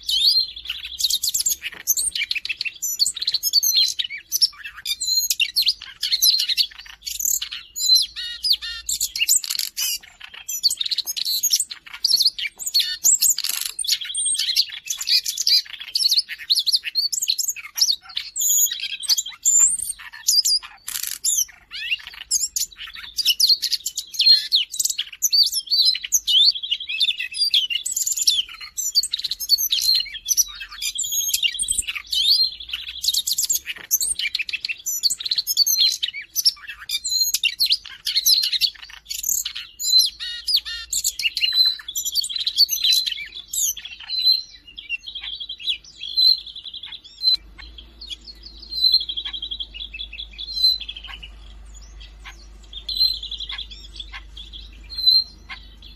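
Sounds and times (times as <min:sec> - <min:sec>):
bird warbling song: 0:00.0 - 0:55.9
buzzy bird trills: 0:27.0 - 0:55.9.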